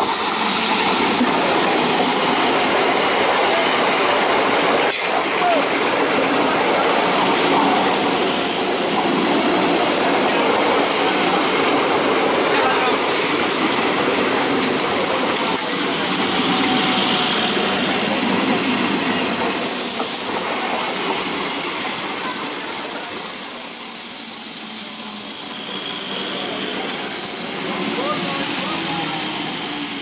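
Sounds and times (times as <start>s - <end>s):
train wheels on rails: 0.0s - 30.0s
high hiss: 5.8s - 11.0s, 19.3s - 30.0s.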